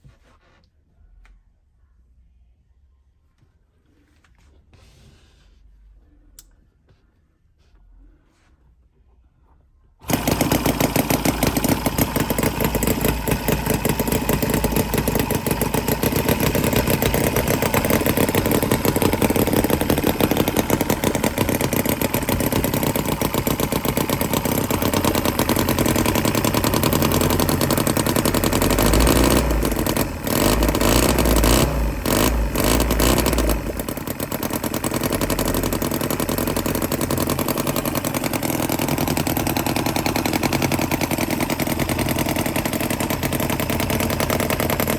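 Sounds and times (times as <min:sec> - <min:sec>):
model engine running: 0:10.0 - 0:44.9.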